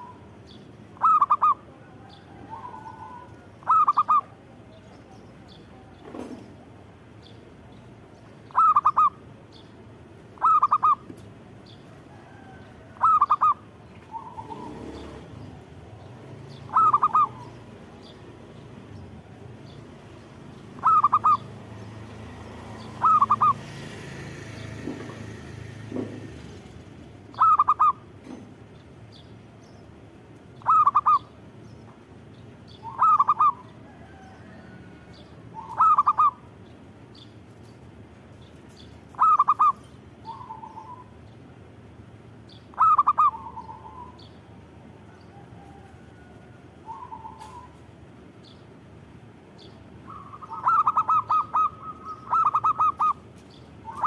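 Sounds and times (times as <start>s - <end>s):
dove cooing: 1.0s - 4.6s, 8.5s - 9.2s, 10.4s - 11.1s, 12.1s - 17.7s, 20.8s - 21.6s, 22.8s - 23.8s, 27.3s - 28.0s, 30.6s - 31.3s, 32.8s - 36.5s, 39.1s - 41.2s, 42.7s - 44.3s, 45.1s - 47.8s, 50.0s - 54.0s.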